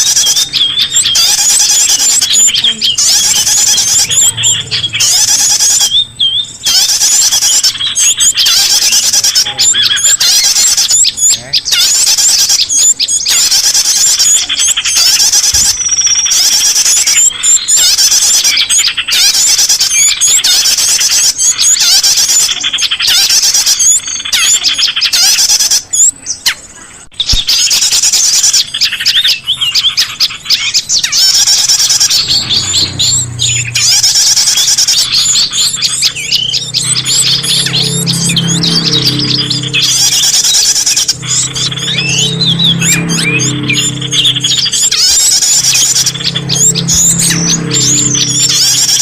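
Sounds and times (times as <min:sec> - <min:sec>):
songbirds chirping and trilling: 0:00.0 - 0:49.0
low hum: 0:31.6 - 0:49.0.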